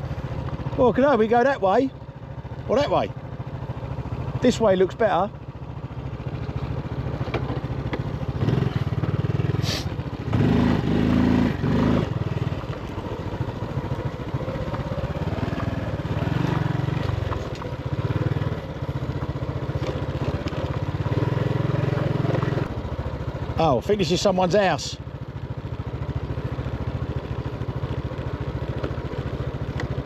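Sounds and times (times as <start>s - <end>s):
motorbike engine running: 0.0s - 30.0s.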